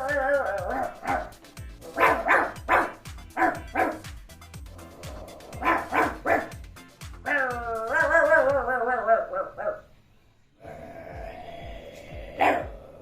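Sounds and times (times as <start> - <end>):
background music: 0.0 - 9.9, 10.6 - 13.0
boy imitating dog barks: 12.4 - 12.8.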